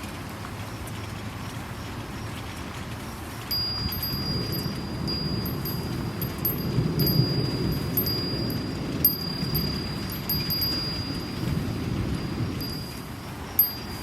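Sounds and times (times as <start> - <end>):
steady rain: 0.0 - 14.0
wind chime ringing: 3.5 - 14.0
low rumble: 3.8 - 14.0.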